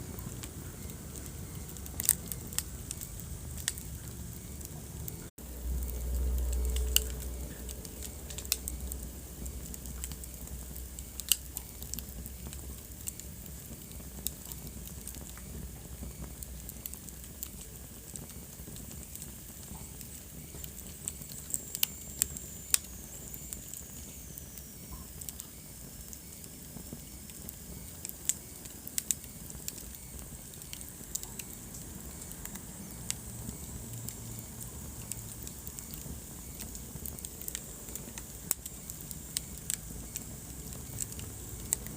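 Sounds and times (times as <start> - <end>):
wood fire crackling and popping: 0.0 - 41.9.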